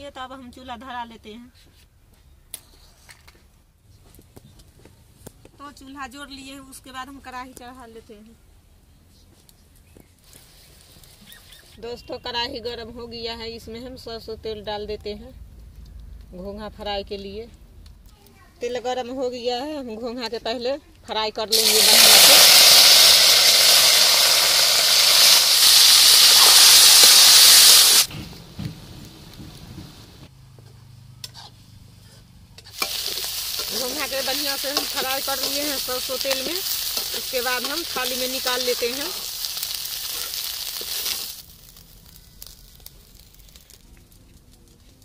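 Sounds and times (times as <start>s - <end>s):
faint crackle: 9.1s - 11.9s, 32.1s - 45.0s
meat sizzling in hot oil: 21.5s - 28.1s, 32.7s - 43.8s.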